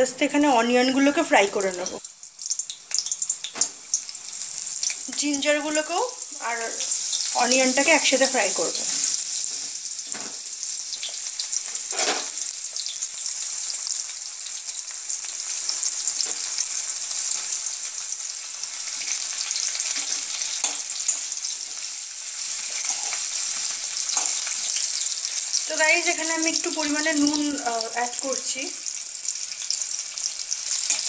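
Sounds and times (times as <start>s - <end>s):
onions sizzling in oil: 0.0s - 31.0s
metal spatula scraping wok: 11.8s - 12.3s.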